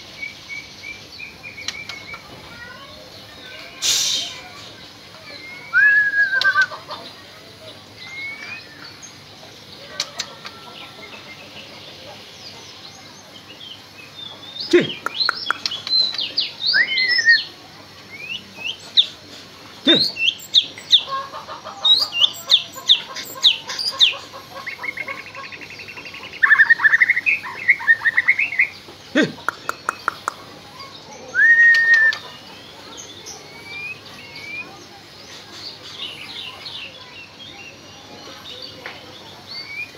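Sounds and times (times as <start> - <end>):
songbird whistling and trilling: 5.3 - 6.7, 8.0 - 8.8, 15.3 - 17.5, 31.3 - 32.3.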